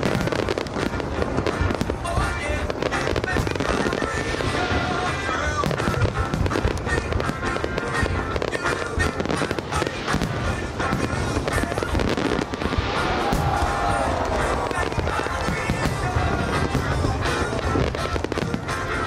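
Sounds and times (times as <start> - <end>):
fireworks bangs and crackles: 0.0 - 19.0
music playing: 0.0 - 19.0.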